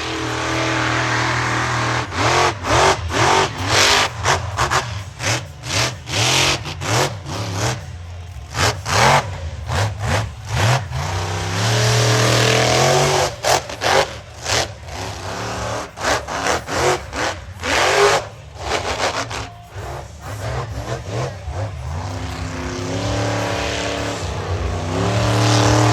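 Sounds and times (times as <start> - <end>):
truck engine revving: 0.0 - 25.9.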